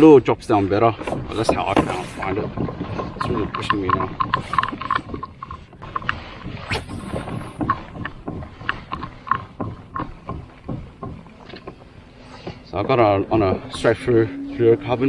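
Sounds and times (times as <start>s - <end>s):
brief high hiss: 6.7s - 7.6s.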